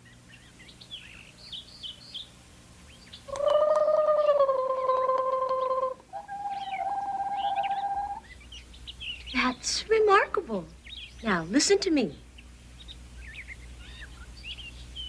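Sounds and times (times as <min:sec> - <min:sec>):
trilled birdsong imitation: 0:00.0 - 0:15.0
faint chirps: 0:02.9 - 0:09.7, 0:10.6 - 0:15.0.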